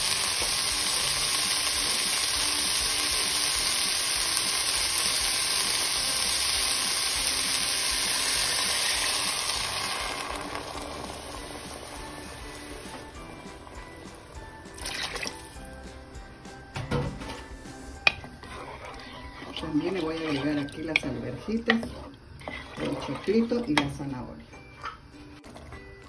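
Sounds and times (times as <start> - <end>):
vegetables sizzling in a pot: 0.0 - 24.1
water poured into pot: 1.4 - 12.0, 14.7 - 15.6, 18.8 - 23.6.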